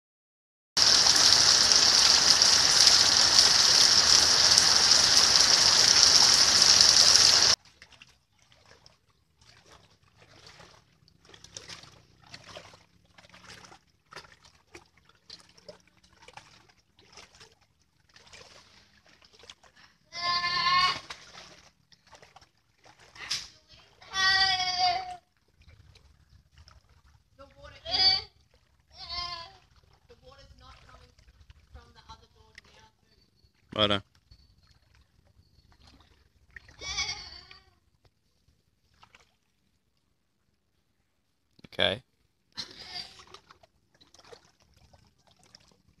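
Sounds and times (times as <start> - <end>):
heavy rain pouring on trees: 0.8 - 7.6
feet wading through water: 0.8 - 33.0, 34.1 - 40.8, 42.9 - 46.0.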